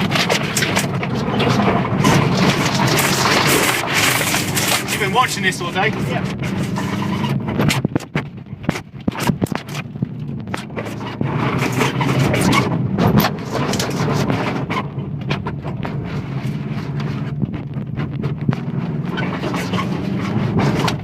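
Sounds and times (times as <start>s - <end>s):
car engine idling: 0.0s - 21.0s
sharp clicks and knocks: 6.3s - 21.0s.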